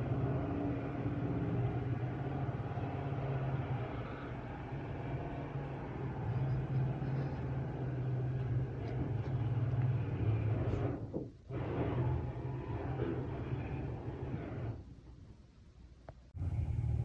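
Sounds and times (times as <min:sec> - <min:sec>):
construction machinery humming: 0:00.0 - 0:14.9, 0:16.3 - 0:17.0.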